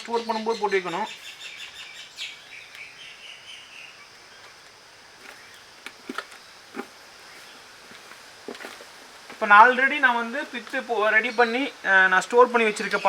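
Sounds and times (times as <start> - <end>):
bird chirps: 0.0 - 5.7
high insect drone: 0.0 - 13.0.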